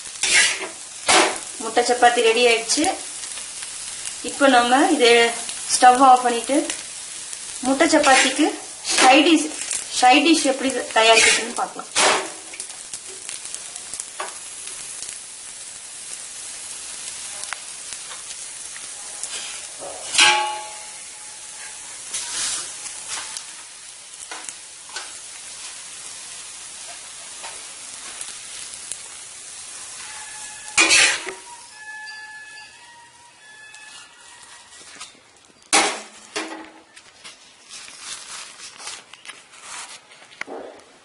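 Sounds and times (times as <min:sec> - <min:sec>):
flatbread sizzling on a hot pan: 0:00.0 - 0:40.6
scraping on a pan: 0:00.2 - 0:01.5, 0:07.8 - 0:09.8, 0:11.0 - 0:12.4, 0:19.0 - 0:23.4, 0:30.0 - 0:35.1.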